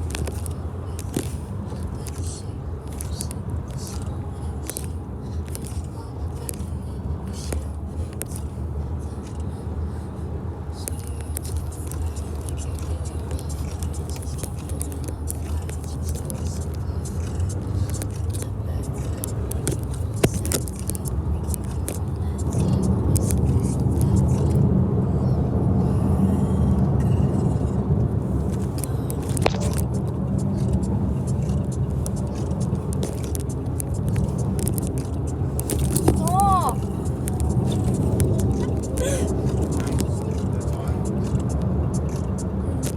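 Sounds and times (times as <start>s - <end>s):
car engine and road rumble: 0.0s - 42.9s
clicks: 10.8s - 24.6s, 28.4s - 42.9s.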